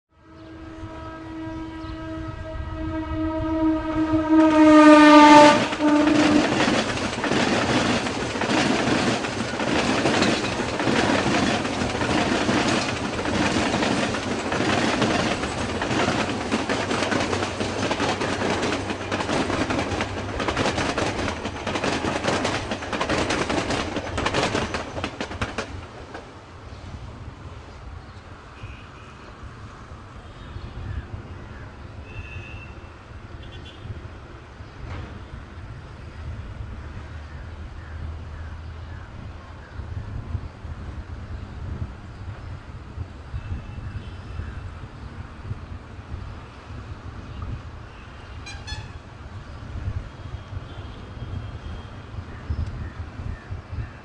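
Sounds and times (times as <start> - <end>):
train horn blast: 0.1 - 6.8, 32.0 - 34.0, 47.9 - 49.1
train wheels clattering over rail joints: 4.4 - 26.4.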